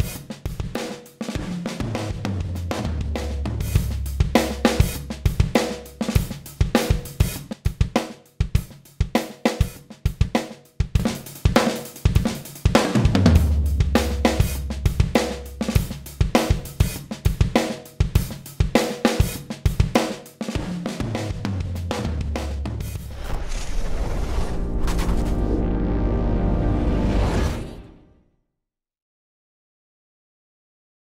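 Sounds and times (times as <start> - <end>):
drum kit playing a groove: 0.0 - 23.1
deep low note: 2.7 - 5.4, 13.2 - 16.0.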